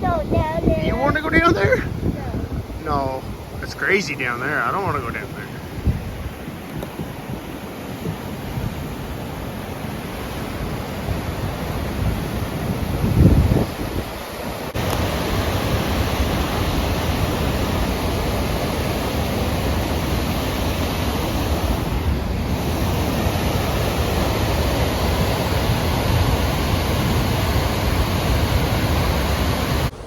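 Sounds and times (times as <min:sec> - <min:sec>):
low wind rumble on microphone: 0:00.0 - 0:30.0
waterfall roaring: 0:07.6 - 0:30.0.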